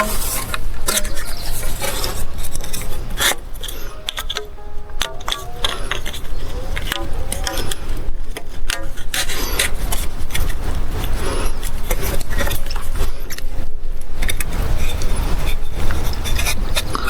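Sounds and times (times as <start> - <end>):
plastic pipe fittings clattering: 0.0 - 10.6.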